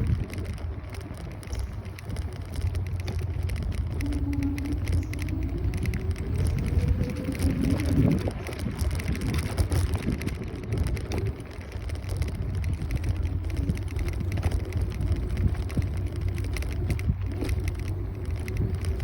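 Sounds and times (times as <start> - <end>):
crackling noise: 0.0 - 19.0
road rumble: 0.0 - 19.0
wind buffeting microphone: 0.0 - 19.0.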